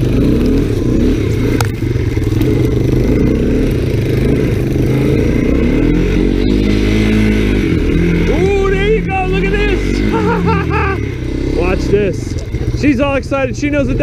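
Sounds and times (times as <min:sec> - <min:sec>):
three-wheeler engine revving: 0:00.0 - 0:14.0.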